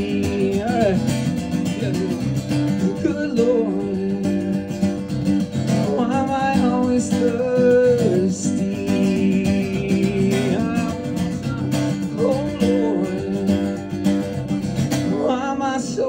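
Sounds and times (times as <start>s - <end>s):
strummed acoustic guitar blues: 0.0s - 16.0s.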